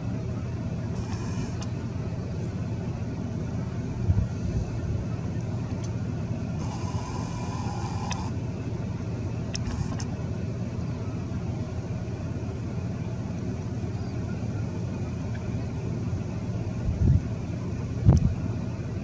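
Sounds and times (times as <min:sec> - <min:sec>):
car engine running: 0:00.0 - 0:19.0
faint clicks: 0:07.7 - 0:08.3, 0:09.5 - 0:10.1.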